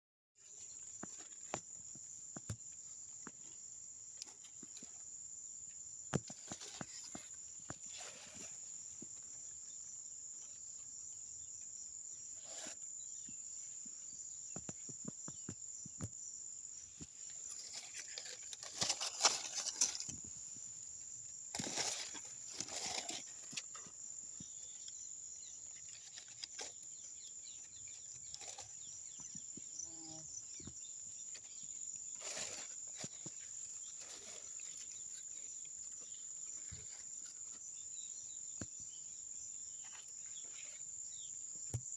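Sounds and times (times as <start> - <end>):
clicks and rustles: 17.0 - 25.0, 25.6 - 29.7.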